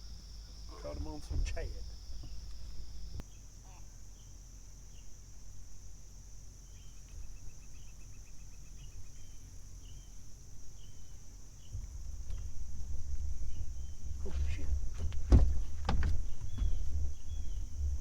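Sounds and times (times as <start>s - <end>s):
insect chorus shrilling: 0.0s - 18.0s
low rumble: 10.4s - 18.0s.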